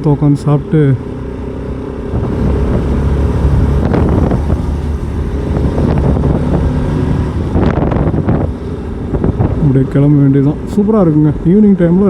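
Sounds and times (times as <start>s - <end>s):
motorcycle engine running: 0.0s - 10.9s
wind noise on microphone: 2.1s - 10.8s.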